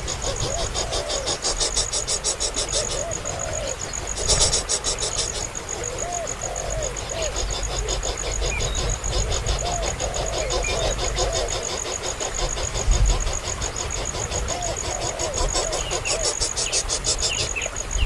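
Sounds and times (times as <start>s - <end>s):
bird calling: 0.0s - 18.0s
insect chirping high: 0.0s - 18.0s.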